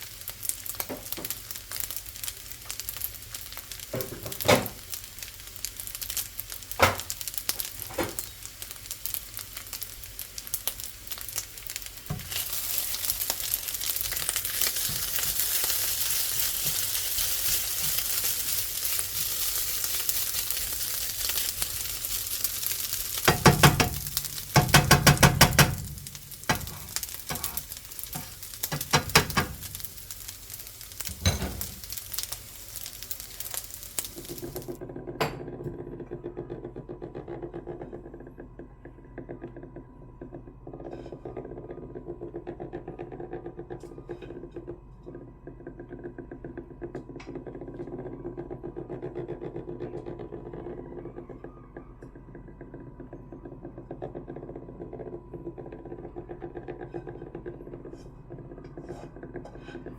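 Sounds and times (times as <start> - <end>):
fried rice sizzling in a pan: 0.0 - 34.8
spatula scraping a pan: 12.2 - 34.6, 56.6 - 59.9.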